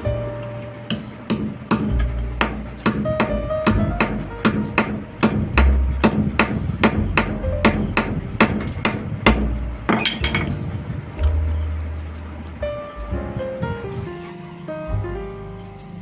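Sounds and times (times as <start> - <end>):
hammer blows: 0.8 - 11.8.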